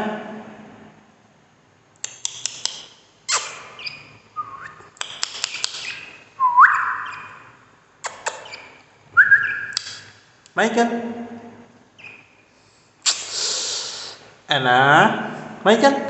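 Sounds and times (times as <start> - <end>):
rising whistled call: 3.3 - 4.8, 5.5 - 7.6, 8.3 - 10.1
budgerigars chirping and chattering: 3.6 - 4.2, 5.1 - 7.5, 8.1 - 8.8.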